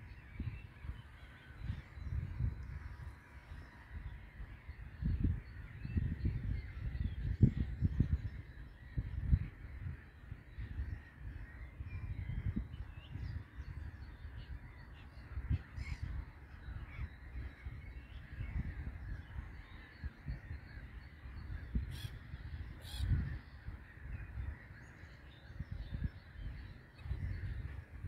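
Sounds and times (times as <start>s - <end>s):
wind rumble on microphone: 0.0s - 28.0s
harsh bird calls: 14.8s - 28.0s.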